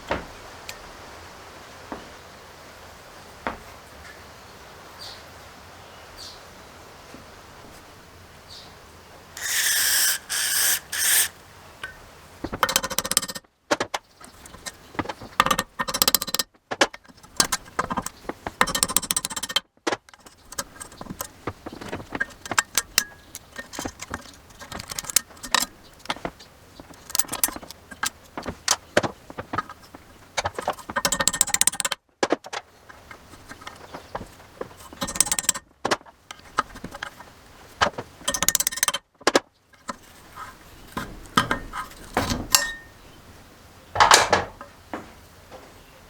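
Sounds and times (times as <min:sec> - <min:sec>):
tools clicking and scraping metal: 0:09.4 - 0:43.0.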